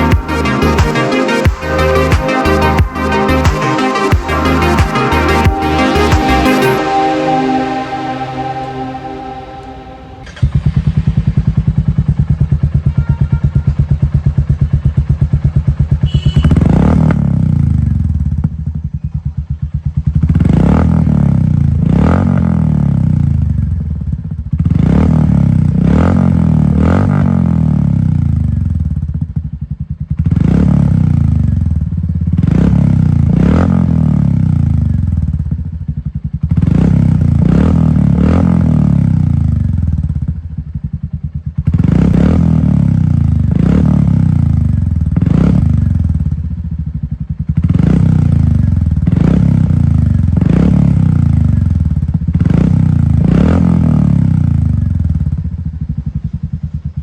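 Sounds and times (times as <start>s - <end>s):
motorcycle throttle blips: 10.2s - 22.5s
motorcycle engine idling: 10.2s - 26.7s, 27.3s - 57.0s.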